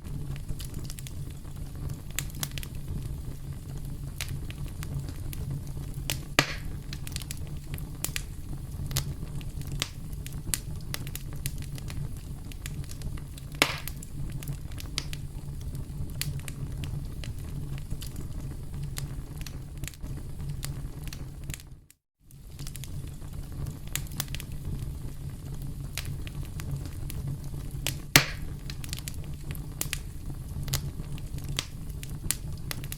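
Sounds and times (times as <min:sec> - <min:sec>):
campfire crackling: 0:00.0 - 0:32.9
loud wood snaps: 0:06.1 - 0:07.2, 0:13.6 - 0:14.0, 0:28.2 - 0:28.5.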